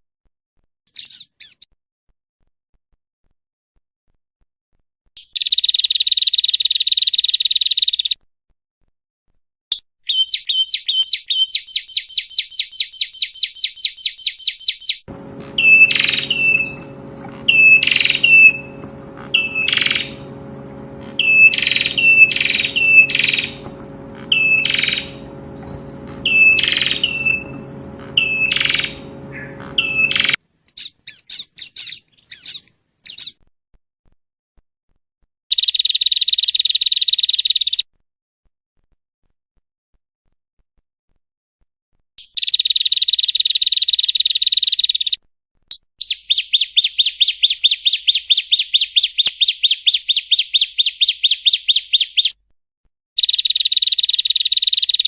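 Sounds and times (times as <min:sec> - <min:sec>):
bird chirps: 0:10.1 - 0:30.4
bird buzzy trill: 0:15.1 - 0:30.4
bird sharp chip notes: 0:15.1 - 0:30.4
steady low hum: 0:15.1 - 0:30.4.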